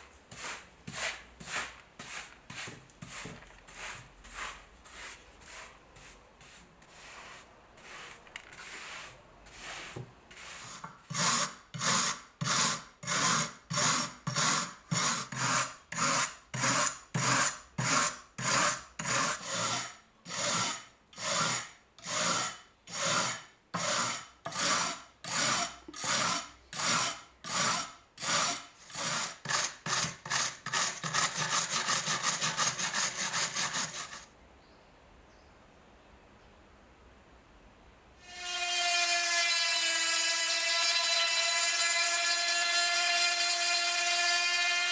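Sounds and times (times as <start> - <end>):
abrasive scrubbing on rusty steel: 0.0 - 12.1, 18.4 - 34.3.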